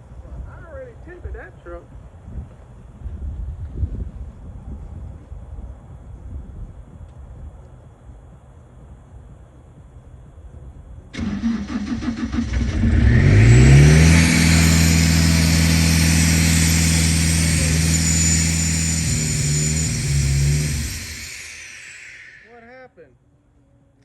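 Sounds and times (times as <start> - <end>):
engine cranking and revving: 11.2 - 22.5
loud hiss: 11.2 - 22.8.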